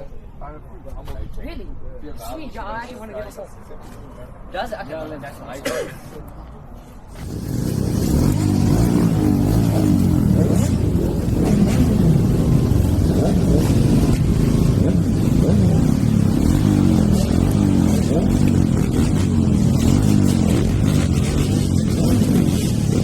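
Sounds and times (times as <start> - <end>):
motorcycle engine revving: 7.1 - 23.0.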